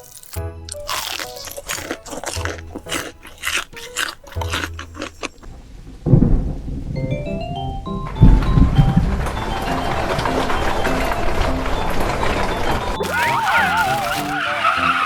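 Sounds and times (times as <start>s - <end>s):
light background music: 0.0s - 5.3s, 7.0s - 15.0s
crunching bites into crisp food: 0.0s - 5.5s, 13.0s - 14.9s.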